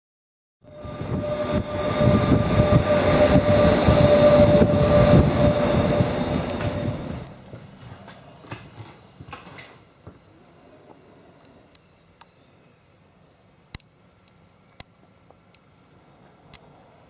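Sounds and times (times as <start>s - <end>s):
steady whine: 0.6s - 7.5s
train rumble: 0.6s - 9.0s.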